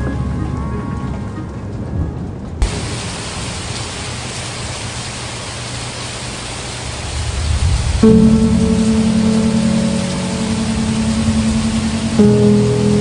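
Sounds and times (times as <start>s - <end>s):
sustained music notes: 0.0s - 2.6s, 7.4s - 13.0s
rain hissing: 0.0s - 13.0s
thunder rumbling: 0.0s - 13.0s.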